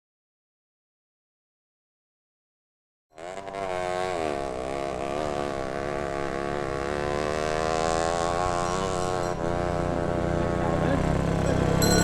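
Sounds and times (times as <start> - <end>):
motor running steadily: 3.2 - 12.0.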